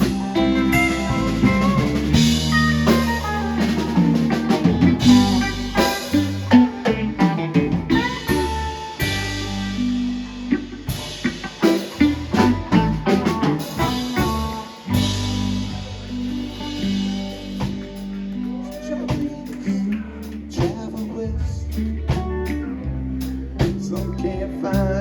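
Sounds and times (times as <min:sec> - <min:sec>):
bass: 0:00.0 - 0:25.0
drum kit: 0:00.0 - 0:25.0
guitar lines: 0:00.0 - 0:25.0.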